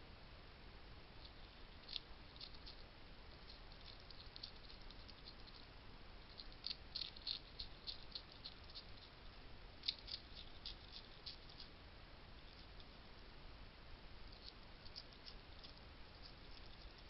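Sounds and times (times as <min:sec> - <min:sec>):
hedgehog crunching dry food: 0:01.2 - 0:05.7, 0:06.3 - 0:09.2, 0:09.8 - 0:11.7, 0:14.3 - 0:17.0.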